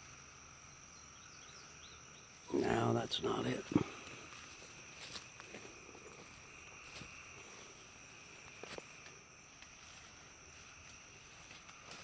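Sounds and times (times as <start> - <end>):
insect chorus chirring: 0.0 - 12.0.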